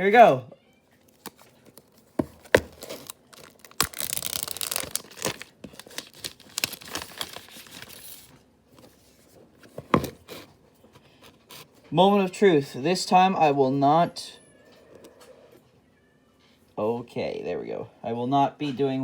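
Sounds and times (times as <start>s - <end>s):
packaging tearing and crinkling: 1.0s - 8.3s.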